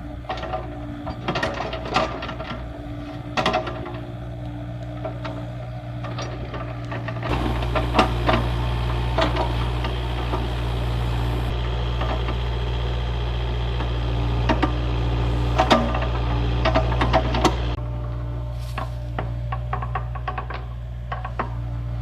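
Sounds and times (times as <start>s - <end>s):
machine engine running: 0.1s - 20.3s
sharp clanks and knocks: 6.0s - 12.4s.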